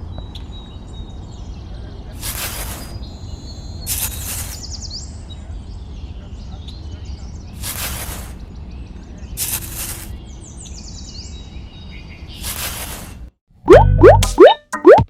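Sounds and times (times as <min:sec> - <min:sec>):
cartoon boing sound effect: 0:13.7 - 0:15.0.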